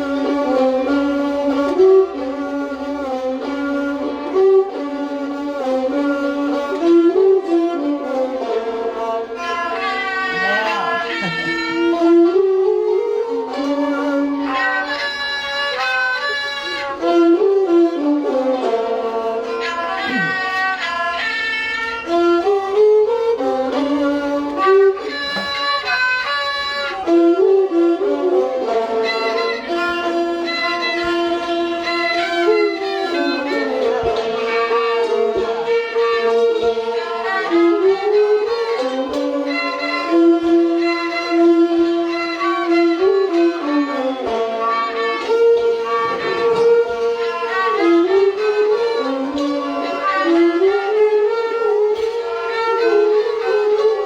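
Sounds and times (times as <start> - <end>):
bowed string melody: 0.0 - 54.0
faint percussion strokes: 0.0 - 54.0.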